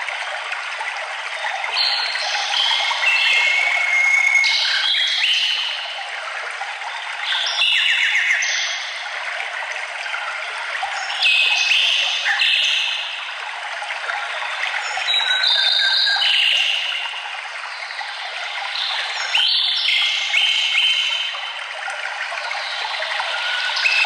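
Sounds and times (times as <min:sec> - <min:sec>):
running stream: 0:00.0 - 0:24.0.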